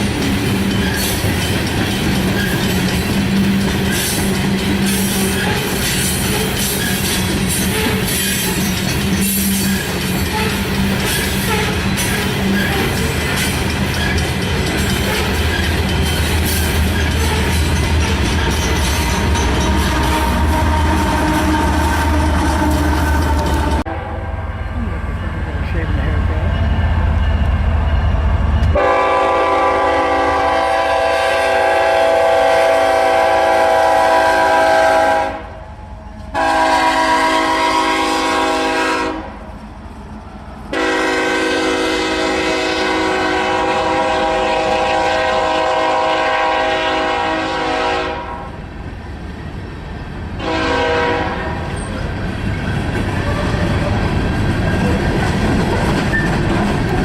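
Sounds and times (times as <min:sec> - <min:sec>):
wheels clacking over rail joints: 0:00.0 - 0:23.8, 0:51.7 - 0:57.0
train rumble: 0:00.0 - 0:57.0
locomotive air horn blasts: 0:19.5 - 0:24.5, 0:28.8 - 0:35.6, 0:36.3 - 0:39.4, 0:40.7 - 0:48.6, 0:50.4 - 0:51.7.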